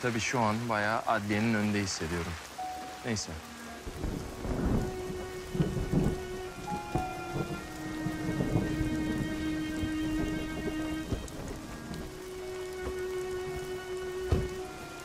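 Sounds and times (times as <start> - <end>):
steady rain: 0.0 - 15.0
background music held tones: 0.1 - 15.0
low rumbles of thunder: 3.8 - 12.9.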